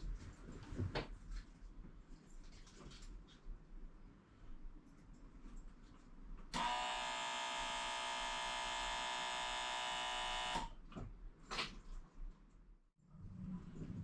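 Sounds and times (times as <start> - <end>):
small electric motor buzzing: 6.6 - 10.7.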